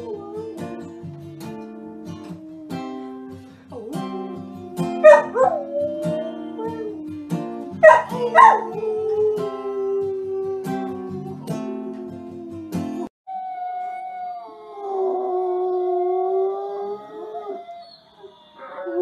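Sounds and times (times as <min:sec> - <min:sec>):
strummed acoustic guitar: 0:00.0 - 0:13.1
dog howling: 0:00.0 - 0:19.0.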